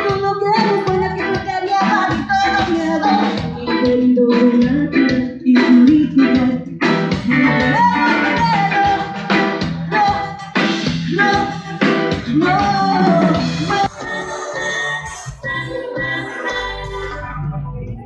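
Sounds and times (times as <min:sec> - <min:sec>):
steady drum beat: 0:00.0 - 0:14.2
guitar: 0:00.0 - 0:18.0
person singing: 0:00.0 - 0:18.0.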